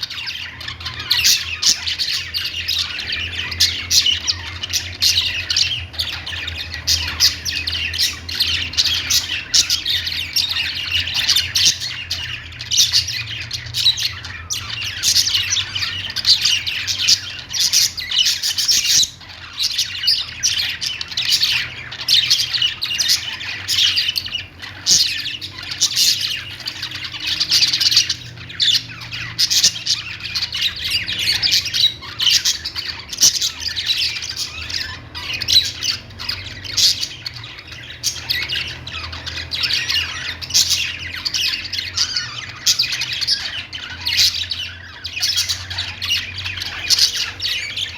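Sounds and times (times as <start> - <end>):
budgerigars chirping and squawking: 0.0 - 47.9.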